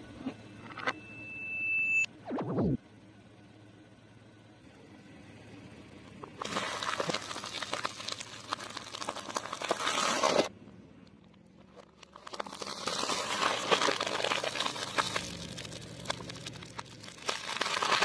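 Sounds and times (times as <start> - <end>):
food crunching under tyre: 6.3 - 10.5, 11.1 - 18.0.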